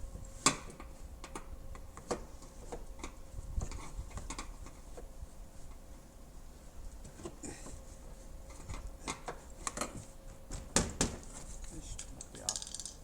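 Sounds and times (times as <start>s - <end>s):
hand tools clicking and tapping: 12.0s - 13.0s.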